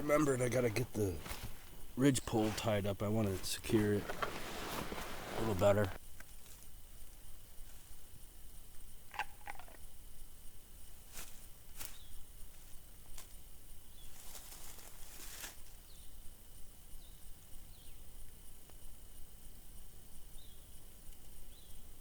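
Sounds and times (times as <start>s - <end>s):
brief rustle: 3.4s - 6.7s
faint chirps: 7.2s - 22.0s.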